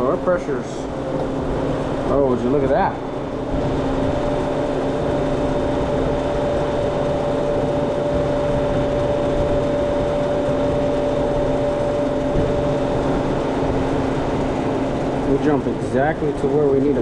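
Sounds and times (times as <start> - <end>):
refrigerator unit humming: 0.0 - 17.0.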